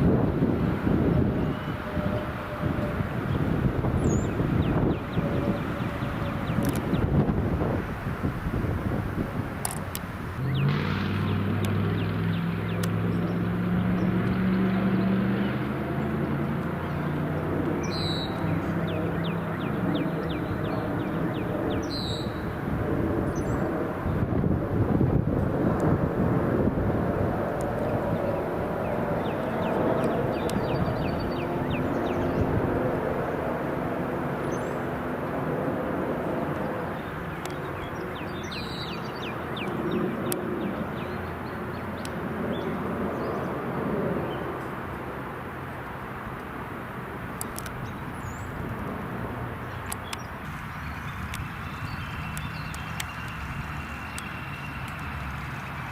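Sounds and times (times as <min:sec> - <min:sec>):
low engine hum: 0:00.0 - 0:55.9
outdoor noise: 0:00.0 - 0:55.9
birds chirping: 0:01.0 - 0:07.6, 0:09.6 - 0:22.6, 0:27.6 - 0:33.6, 0:34.4 - 0:35.0, 0:36.2 - 0:44.8, 0:47.3 - 0:55.9.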